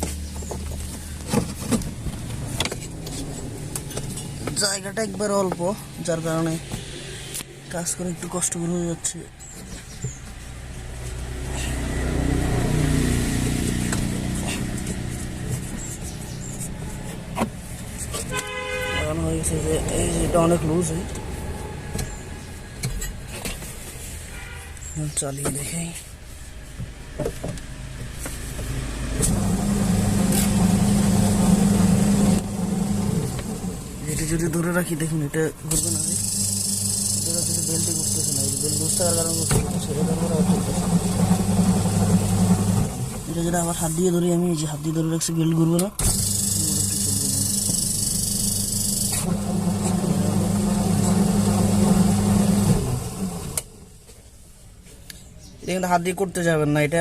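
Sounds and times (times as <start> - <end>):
washing machine motor humming: 29.2 - 53.8.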